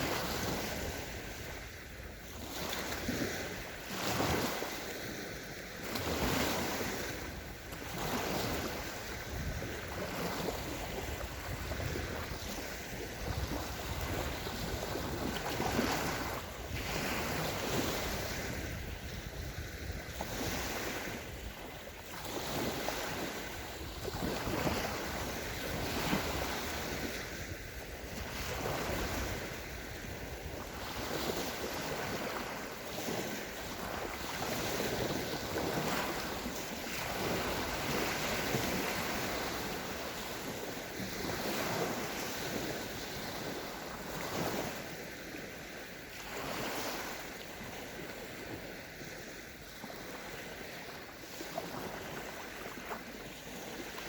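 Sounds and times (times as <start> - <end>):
wind buffeting microphone: 0.0 - 45.4
small waves breaking on beach: 0.0 - 54.0.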